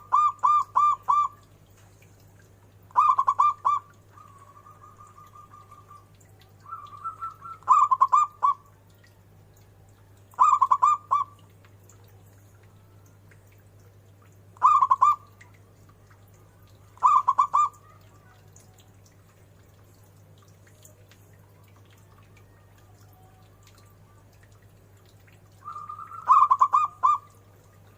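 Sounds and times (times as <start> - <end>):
dove cooing: 0.0 - 1.4, 2.9 - 8.7, 10.4 - 11.4, 14.6 - 15.3, 17.0 - 18.5, 25.6 - 27.9
low steady hum: 0.0 - 27.9.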